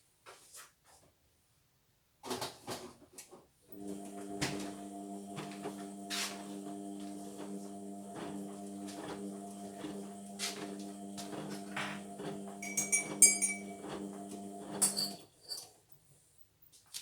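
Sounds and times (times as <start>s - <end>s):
washing machine drum motor humming: 3.7s - 15.2s.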